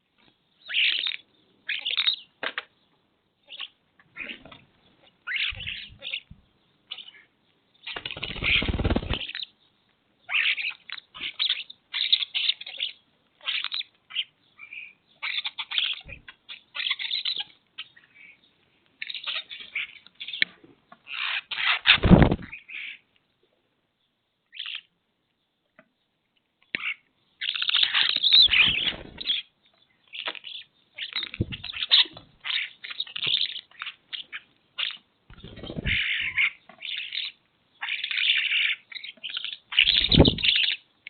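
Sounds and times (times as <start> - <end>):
small birds chirping: 0.0 - 41.0
wings flapping: 7.9 - 9.4, 21.8 - 22.6, 28.3 - 29.4, 31.2 - 32.3, 35.3 - 36.4, 39.8 - 40.6.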